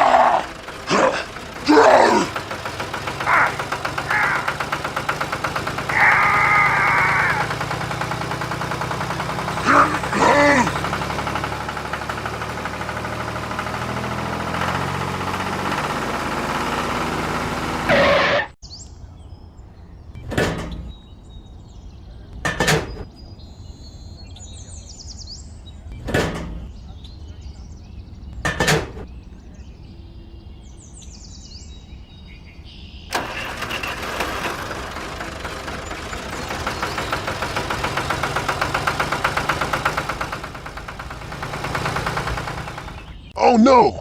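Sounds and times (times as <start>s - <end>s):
small engine running: 0.0s - 18.5s, 33.1s - 43.3s
sharp knocks: 22.4s - 23.1s, 28.4s - 29.1s.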